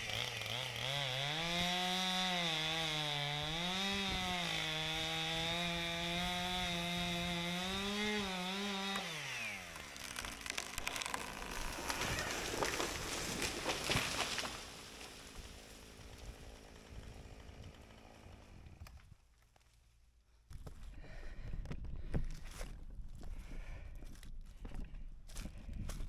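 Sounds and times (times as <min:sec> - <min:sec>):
chainsaw cutting wood: 0:00.0 - 0:19.2
crackles: 0:09.7 - 0:20.0.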